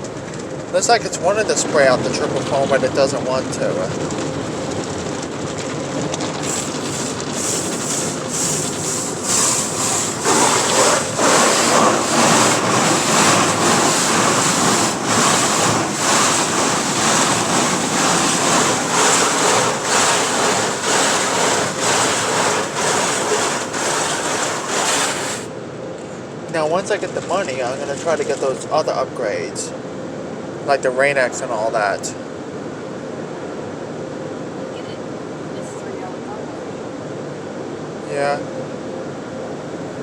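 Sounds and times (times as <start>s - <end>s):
rush of water in car wash: 0.0s - 25.6s, 26.5s - 29.2s
fast uneven slapping: 6.4s - 25.5s.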